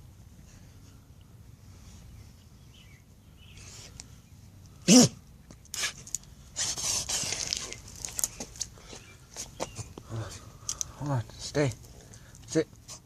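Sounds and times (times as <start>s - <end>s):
dog sneezing: 4.8s - 5.2s.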